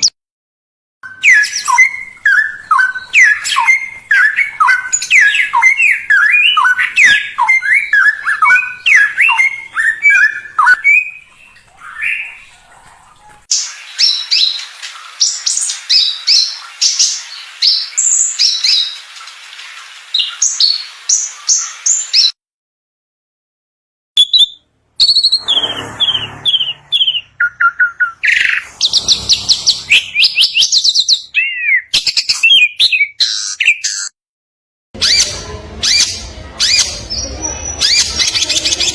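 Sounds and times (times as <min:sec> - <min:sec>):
songbirds chirping and trilling: 0:01.1 - 0:22.3, 0:24.2 - 0:34.1, 0:35.0 - 0:38.9.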